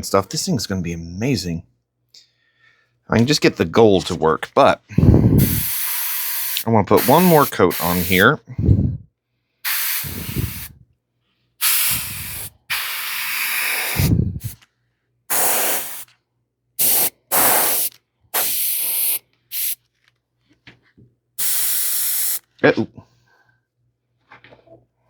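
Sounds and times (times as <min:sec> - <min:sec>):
airbrush hissing bursts: 0:05.3 - 0:08.2, 0:09.6 - 0:10.8, 0:11.6 - 0:14.6, 0:15.3 - 0:16.1, 0:16.8 - 0:19.8, 0:21.4 - 0:22.4.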